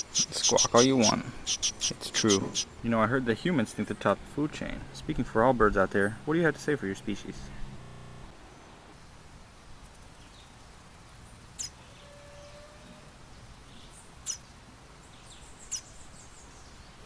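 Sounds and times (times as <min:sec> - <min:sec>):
baby bird peeping: 0:00.0 - 0:02.8, 0:11.6 - 0:12.6, 0:14.2 - 0:14.5, 0:15.5 - 0:16.0
faint background hiss: 0:00.0 - 0:17.0.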